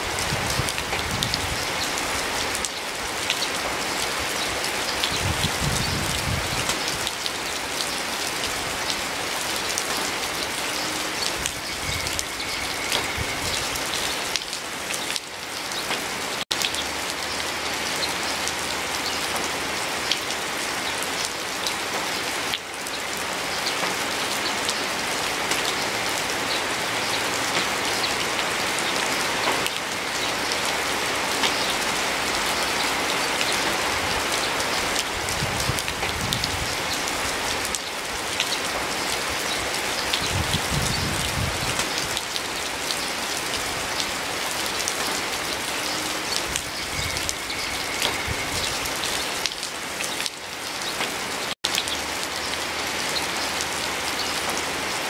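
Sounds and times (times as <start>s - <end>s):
steady rain: 0.0s - 55.0s
raindrops ticking: 27.0s - 35.1s.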